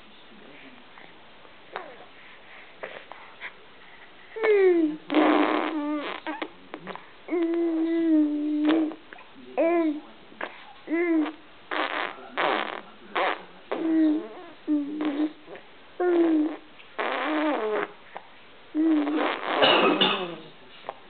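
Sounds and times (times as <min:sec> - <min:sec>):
baby blowing raspberries: 0:04.3 - 0:09.1, 0:10.4 - 0:20.5
baby cooing and squealing: 0:04.4 - 0:06.5.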